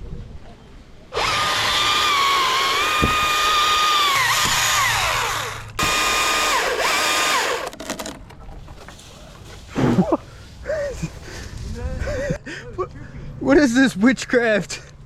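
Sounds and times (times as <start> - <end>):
chainsaw cutting wood: 1.2 - 8.2.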